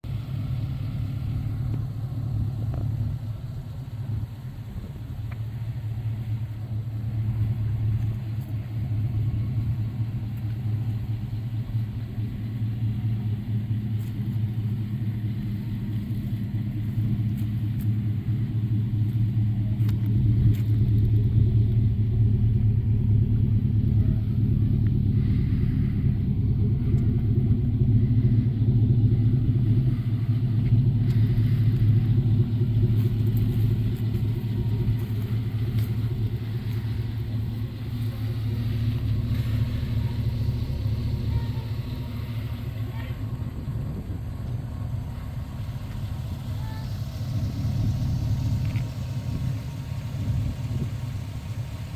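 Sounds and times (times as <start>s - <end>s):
engine low rumble: 0.0s - 51.9s.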